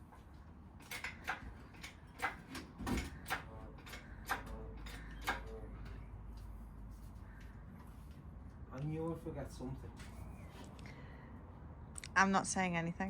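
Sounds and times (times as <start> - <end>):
clicks and knocks of hand tools: 0.8 - 6.0.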